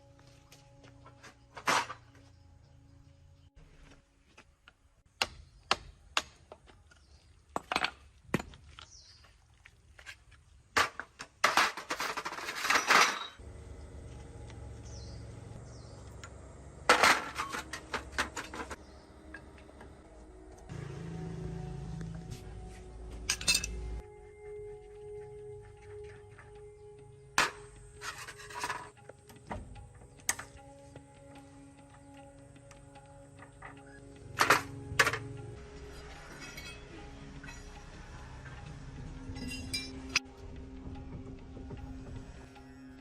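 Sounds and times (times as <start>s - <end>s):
low steady hum: 13.4s - 42.5s
metallic clinks and knocks: 23.2s - 24.0s, 31.8s - 38.6s, 39.3s - 40.3s.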